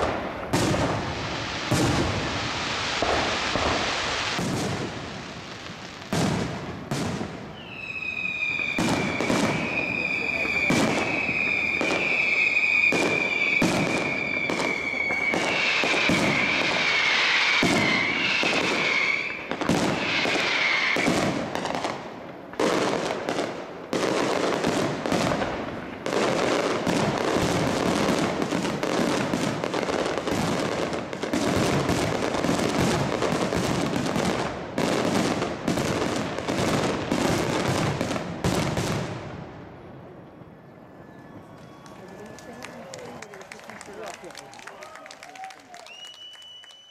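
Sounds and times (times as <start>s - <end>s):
fireworks whistling: 0.0s - 22.0s, 44.0s - 46.9s
fireworks bangs and crackle: 0.0s - 40.7s.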